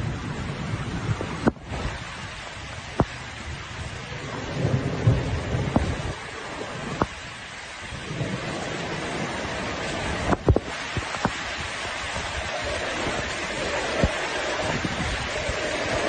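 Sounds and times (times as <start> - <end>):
heavy rain: 0.0 - 16.0
wind noise: 0.0 - 16.0.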